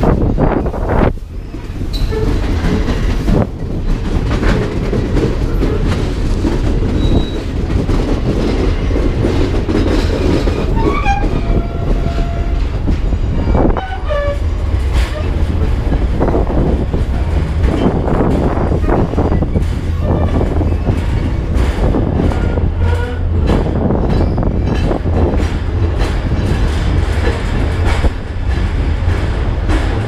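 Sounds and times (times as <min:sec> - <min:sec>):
train rumbling on rails: 0:00.0 - 0:30.0
wheels squealing: 0:01.4 - 0:02.9, 0:06.8 - 0:07.6, 0:09.8 - 0:16.0.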